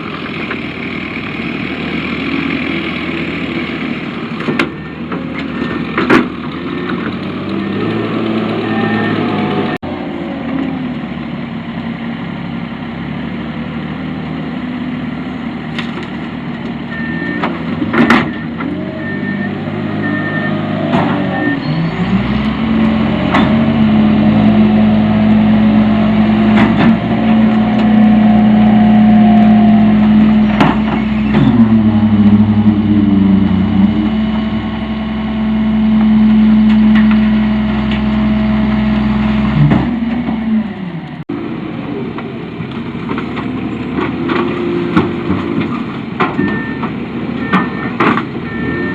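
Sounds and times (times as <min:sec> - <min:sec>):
diesel truck engine: 0:00.0 - 0:48.9
sharp bangs and knocks: 0:30.0 - 0:31.7.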